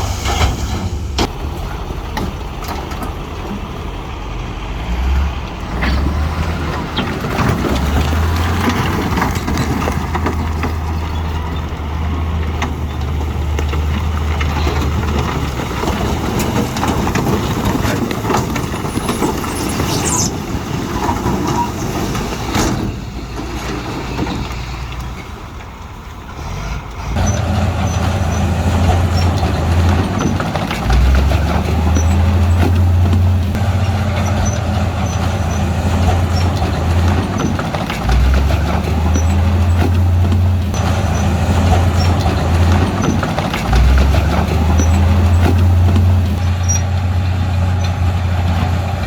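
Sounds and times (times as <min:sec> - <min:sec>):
heavy diesel machinery engine drone: 0:00.0 - 0:49.0.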